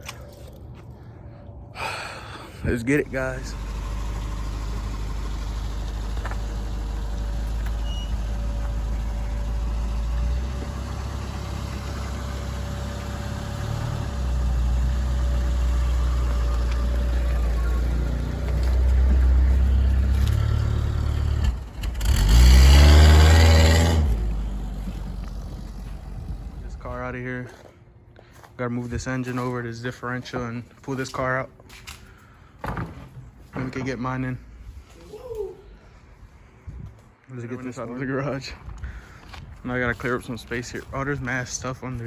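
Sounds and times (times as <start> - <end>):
car engine running and revving: 2.9 - 27.0.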